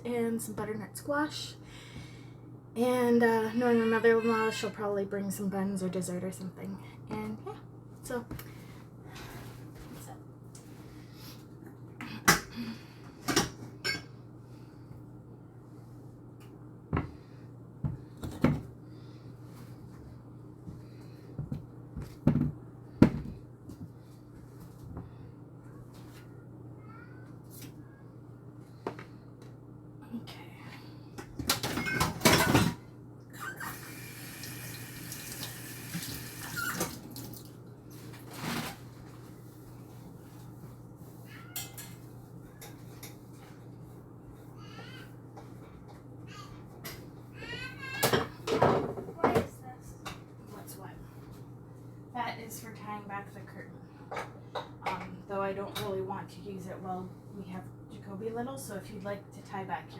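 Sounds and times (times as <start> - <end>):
kitchen items knocking and clanking: 31.4 - 32.8, 48.1 - 49.5.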